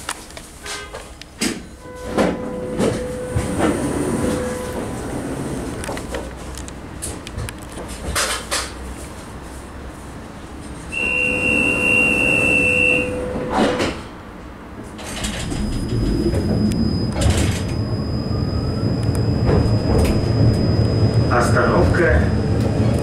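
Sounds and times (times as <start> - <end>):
tram doors closing: 0.0 - 23.0
tram running rumble: 0.0 - 23.0
high whine of traction drive: 15.0 - 23.0
electronic warning tone: 15.4 - 21.9.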